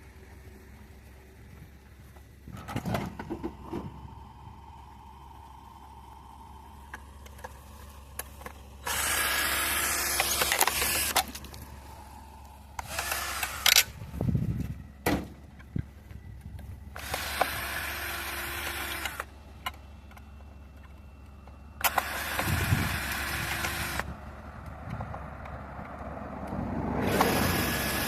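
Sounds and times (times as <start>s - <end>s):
small electric motor running: 4.6s - 12.0s, 12.7s - 14.4s, 16.9s - 19.3s, 21.8s - 24.2s, 27.0s - 28.0s.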